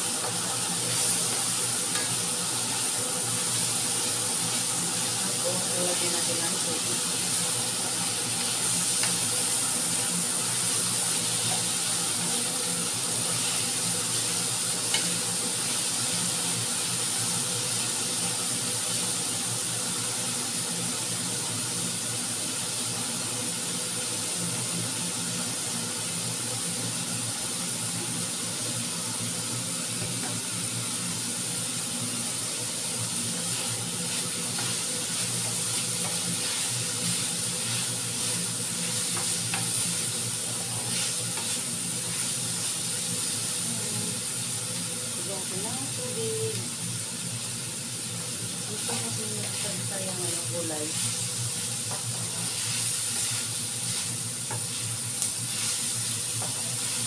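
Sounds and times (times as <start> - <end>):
vegetables sizzling in a frying pan: 0.0 - 57.0.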